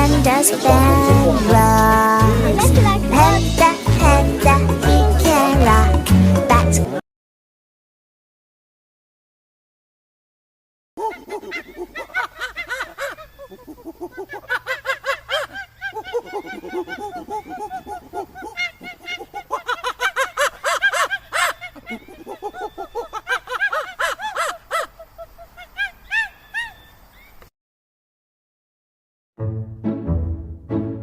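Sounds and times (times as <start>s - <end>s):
flock of animals calling: 11.0s - 27.4s.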